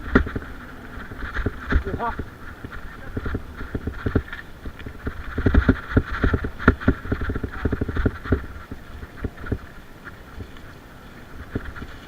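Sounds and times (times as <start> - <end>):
bike rattling over rough ground: 0.0 - 12.0
tyre and wind hiss: 0.0 - 12.0.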